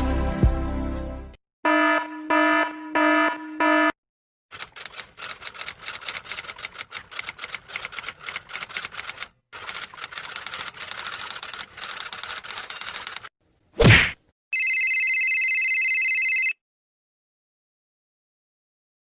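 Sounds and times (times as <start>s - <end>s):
keyboard typing: 4.5s - 13.3s.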